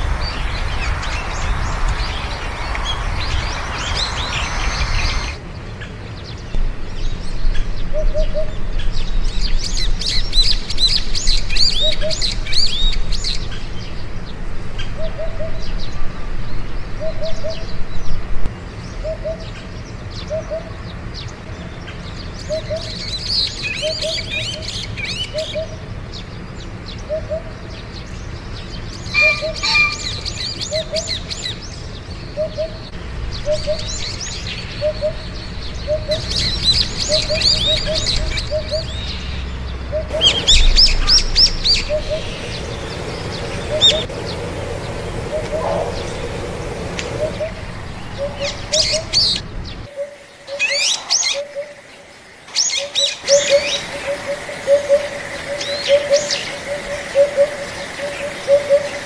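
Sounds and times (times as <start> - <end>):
birds twittering: 0.0 - 59.0
short low note: 40.1 - 44.1.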